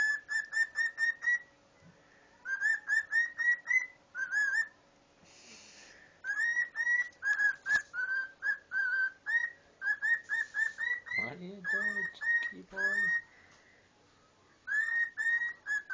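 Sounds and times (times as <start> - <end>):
cockatiel whistling a tune: 0.0 - 1.5, 2.4 - 4.8, 6.2 - 13.3, 14.7 - 15.9.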